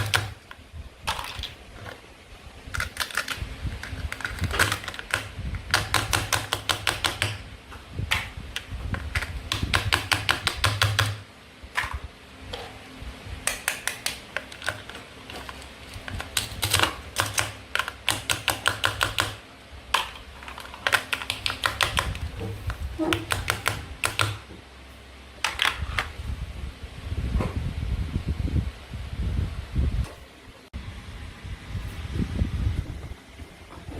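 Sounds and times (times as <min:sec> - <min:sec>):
toy food pieces clicking: 0:02.7 - 0:07.4, 0:08.1 - 0:11.2, 0:13.5 - 0:15.0, 0:16.0 - 0:19.4, 0:20.0 - 0:22.3, 0:23.1 - 0:24.4.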